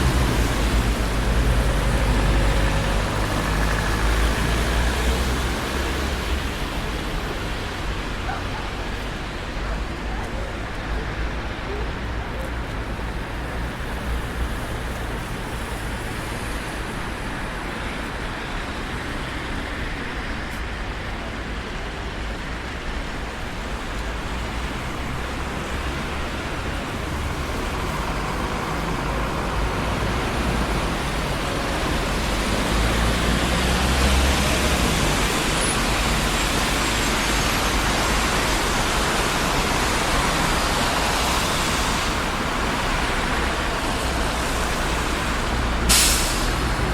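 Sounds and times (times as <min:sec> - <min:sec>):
cars passing on busy street: 0:00.0 - 0:46.9.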